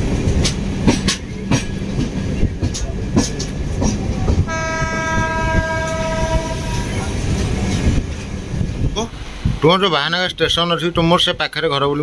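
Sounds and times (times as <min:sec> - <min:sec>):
train wheels knocking on rail joints: 0:00.0 - 0:09.6
train horn: 0:04.5 - 0:07.2.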